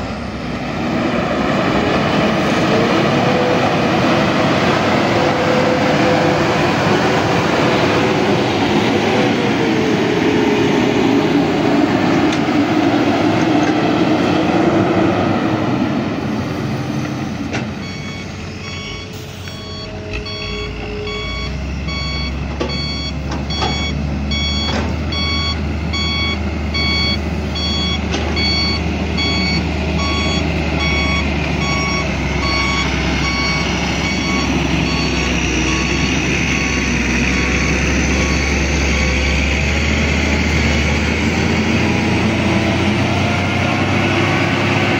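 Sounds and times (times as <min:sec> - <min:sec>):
diesel truck engine: 0:00.0 - 0:44.9
reversing alarm beeping: 0:17.8 - 0:39.6.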